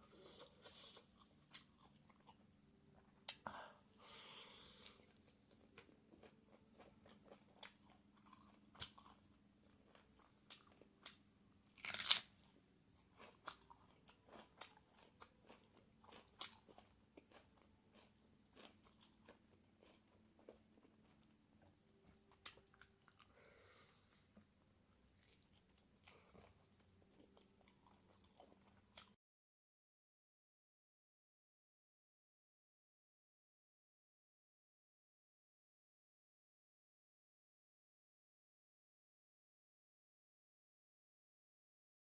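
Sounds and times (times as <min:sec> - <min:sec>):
person chewing crunchy food: 0:00.1 - 0:02.4, 0:04.0 - 0:24.6, 0:25.2 - 0:29.1.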